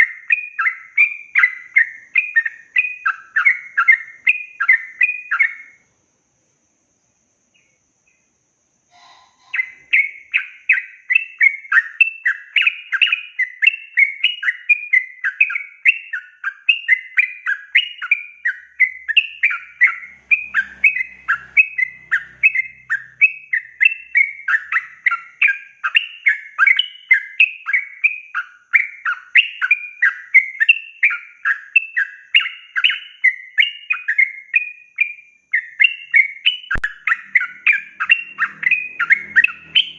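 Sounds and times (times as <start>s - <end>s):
bulbul singing chattering phrases: 8.9s - 15.6s, 35.6s - 39.9s.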